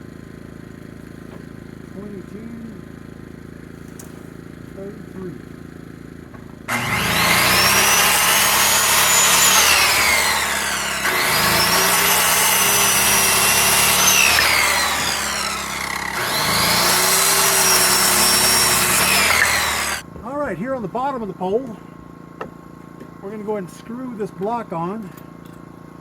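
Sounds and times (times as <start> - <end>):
power saw cutting wood: 6.7 - 20.0.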